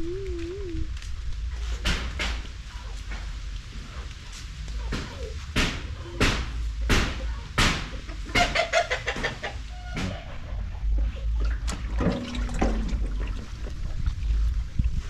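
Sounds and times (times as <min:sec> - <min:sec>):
wind rumble on microphone: 0:00.0 - 0:07.6, 0:09.6 - 0:15.0
chickens clucking: 0:04.7 - 0:11.7.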